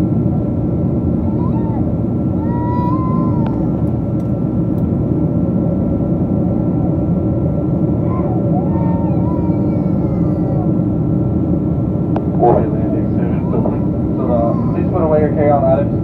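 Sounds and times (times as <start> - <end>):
airliner cabin roar: 0.0 - 16.0
faint passenger voices: 0.0 - 16.0
thin steady whine: 10.5 - 16.0.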